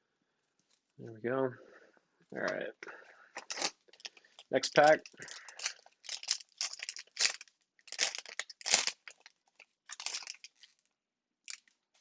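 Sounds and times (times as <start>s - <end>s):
wrapper crinkling and tearing: 3.4s - 10.9s, 11.5s - 12.0s.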